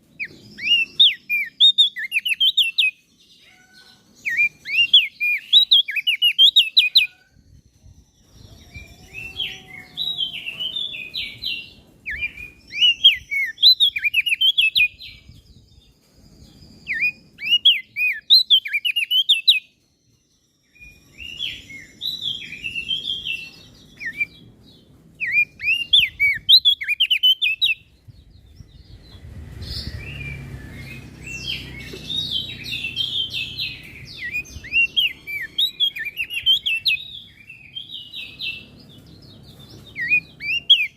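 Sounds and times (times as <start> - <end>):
bird high chirping song: 0.0 - 40.9
low rumble: 27.8 - 35.3.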